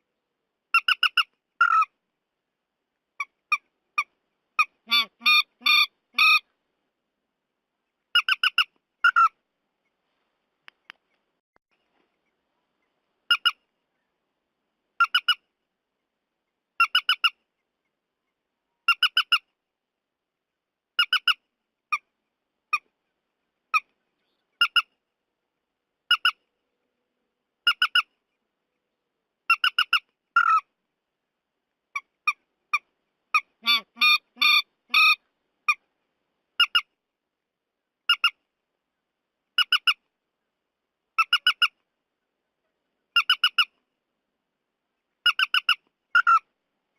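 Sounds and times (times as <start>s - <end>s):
bird squawking calls: 4.6s - 6.4s, 29.5s - 30.6s, 33.4s - 35.8s, 45.3s - 46.4s
bird chattering: 29.5s - 30.6s, 32.0s - 35.8s, 43.2s - 43.7s, 45.2s - 46.4s.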